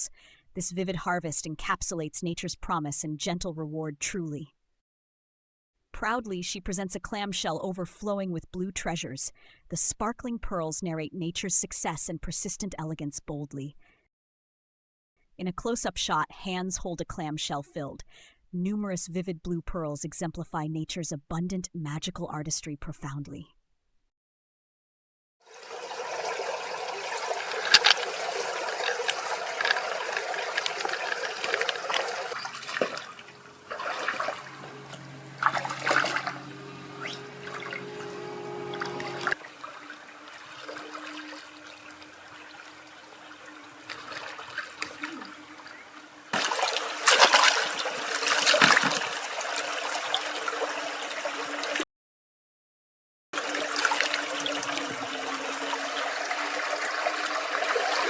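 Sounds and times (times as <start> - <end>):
water sloshing and trickling: 25.5 - 51.8, 53.4 - 58.0.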